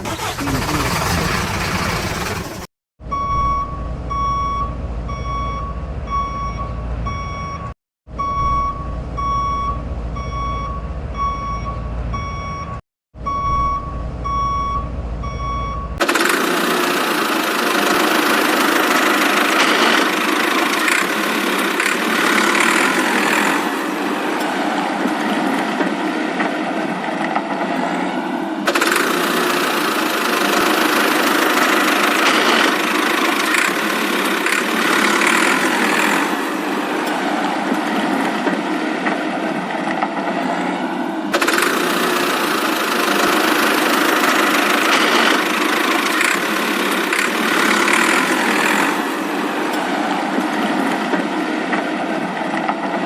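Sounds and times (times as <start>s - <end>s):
truck reversing alarm beeping: 2.2s - 16.1s.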